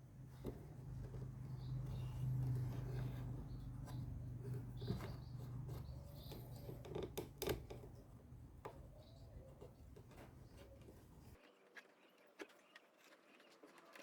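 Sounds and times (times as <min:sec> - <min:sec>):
low steady hum: 0:00.0 - 0:11.4
clicks and knocks of hand tools: 0:00.2 - 0:11.4.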